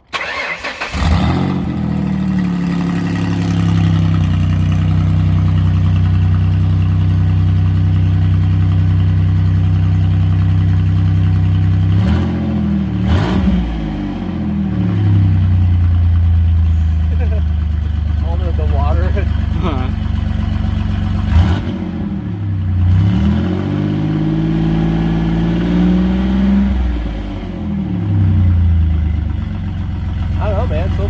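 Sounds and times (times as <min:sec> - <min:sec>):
car engine idling: 0:00.1 - 0:12.0, 0:14.6 - 0:23.1, 0:26.8 - 0:31.0.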